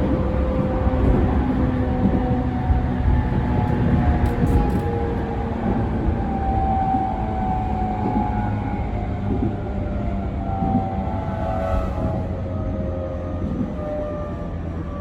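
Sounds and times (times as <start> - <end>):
train wheels rumbling on rails: 0.0 - 15.0
strong low hum: 10.0 - 13.6.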